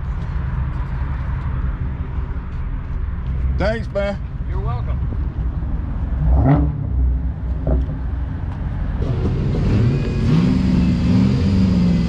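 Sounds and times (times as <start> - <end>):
car engine revving: 6.2 - 8.0, 9.0 - 12.0.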